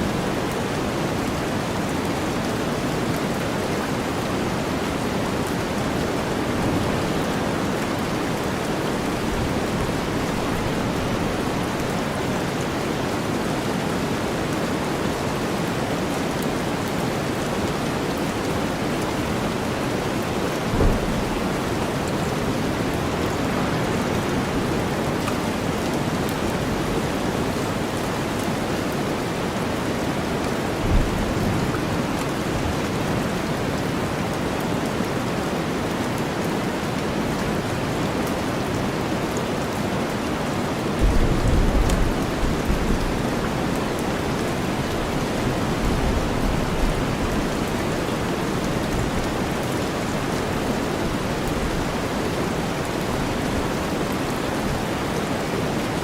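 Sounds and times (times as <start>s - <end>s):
steady rain: 0.0s - 56.0s
thunder rumbling: 19.4s - 27.5s, 41.0s - 47.5s
low thump: 20.7s - 21.6s.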